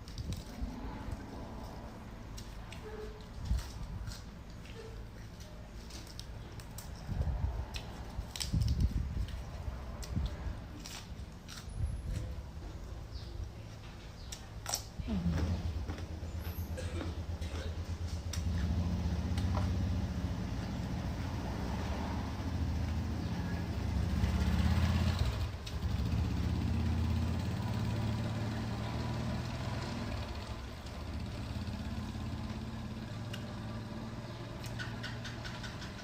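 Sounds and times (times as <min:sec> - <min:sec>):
engine humming: 0:15.0 - 0:36.0.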